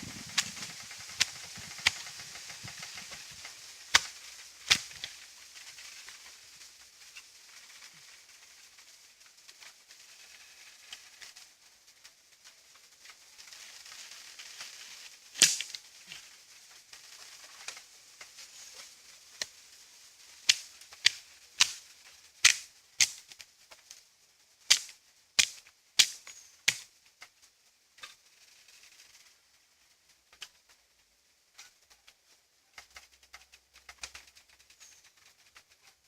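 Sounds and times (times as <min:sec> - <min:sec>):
campfire wood snapping and cracking: 0:00.0 - 0:06.6, 0:13.0 - 0:24.0, 0:24.7 - 0:27.4, 0:32.8 - 0:35.7
faint hiss: 0:00.0 - 0:36.0.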